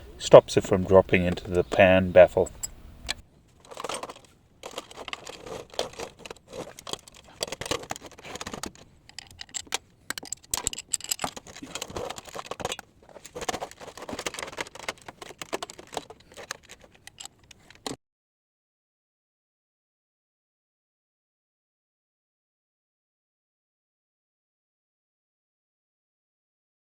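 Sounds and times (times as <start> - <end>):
spanner clinking on bolts: 0.8 - 18.0.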